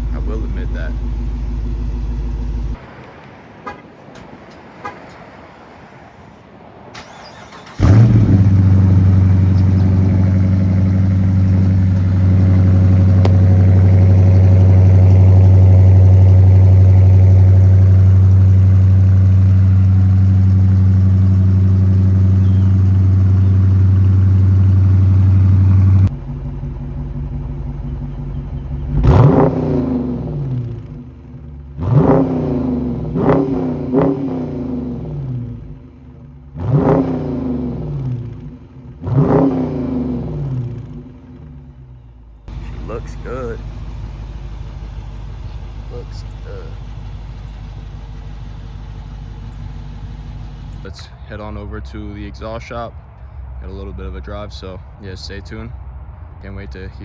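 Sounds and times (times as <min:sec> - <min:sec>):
car engine fast idle: 0:00.0 - 0:02.8, 0:07.0 - 0:28.9, 0:42.5 - 0:50.9
car engine revving: 0:00.0 - 0:02.8, 0:07.0 - 0:27.4, 0:28.3 - 0:51.0.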